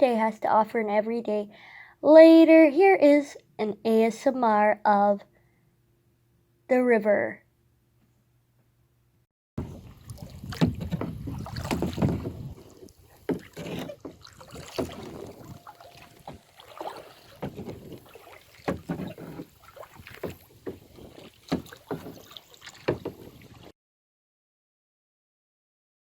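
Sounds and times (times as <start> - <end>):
kayak paddle splashing: 9.6 - 23.7
water sloshing: 9.6 - 23.7.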